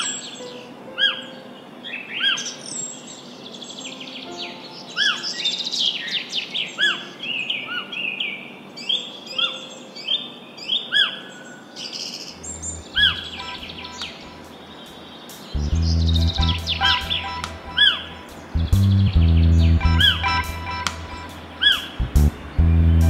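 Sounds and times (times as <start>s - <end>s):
songbirds chirping and singing: 0.0s - 20.4s
short whistled bird notes: 12.6s - 14.5s.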